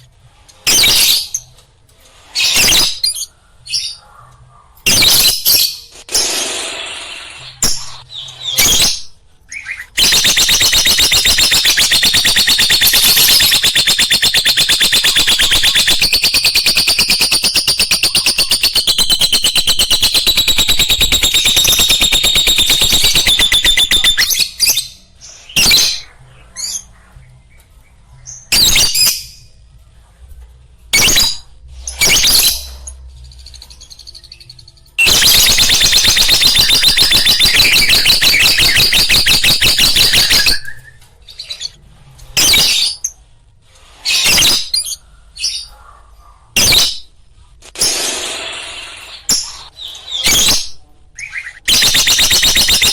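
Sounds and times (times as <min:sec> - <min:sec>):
lovebird chirping: 0:07.1 - 0:27.7, 0:31.0 - 0:41.8
lovebird squawks: 0:09.6 - 0:24.9.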